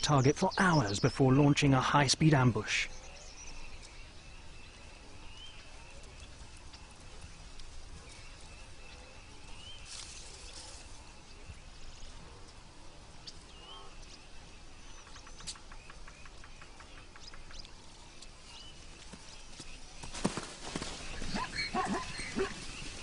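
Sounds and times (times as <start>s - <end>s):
low steady background hiss: 0.0s - 21.4s
rapid run of ticks: 5.0s - 9.2s, 14.9s - 23.0s.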